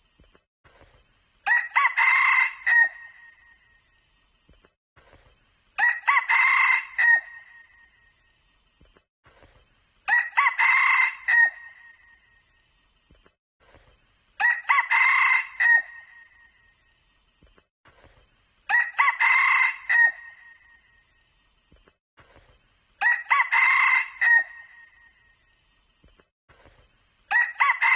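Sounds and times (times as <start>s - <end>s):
rooster crowing: 1.5s - 3.2s, 5.8s - 7.5s, 10.1s - 11.8s, 14.4s - 16.2s, 18.7s - 20.6s, 23.0s - 24.9s, 27.3s - 27.9s.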